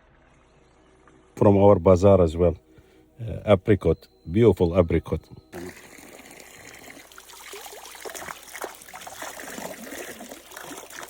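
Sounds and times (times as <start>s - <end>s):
water trickling and bubbling: 5.4s - 11.0s.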